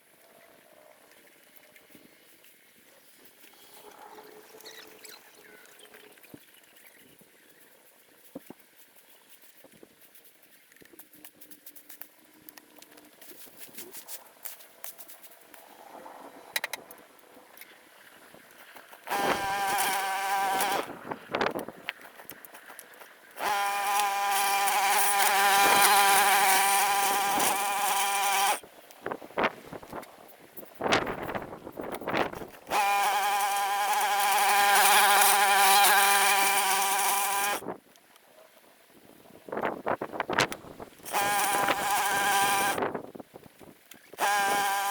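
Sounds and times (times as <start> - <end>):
small engine running: 19.0 - 21.3, 22.0 - 28.6, 32.6 - 37.6, 41.0 - 42.8, 44.2 - 44.9
small motor buzzing: 19.0 - 22.6, 23.3 - 28.6, 30.9 - 37.7, 40.4 - 42.9, 44.1 - 44.9.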